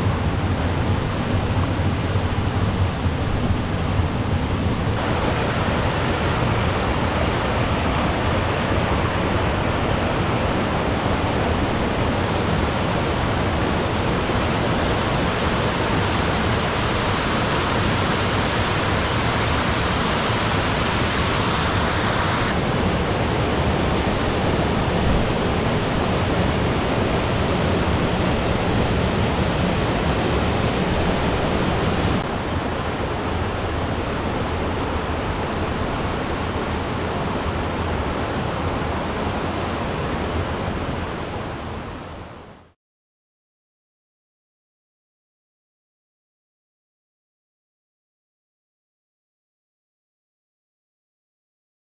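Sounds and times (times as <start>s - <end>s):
waterfall rushing: 5.0s - 41.8s.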